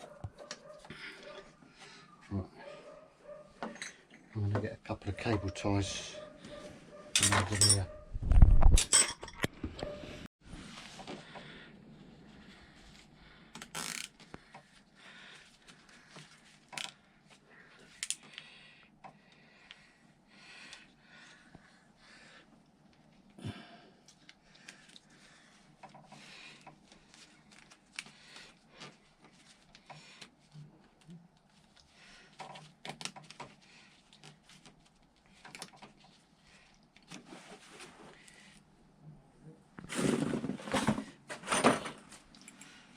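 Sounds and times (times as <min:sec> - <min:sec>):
rustling of hand work: 0:09.4 - 0:18.6, 0:24.0 - 0:38.7, 0:39.8 - 0:42.9.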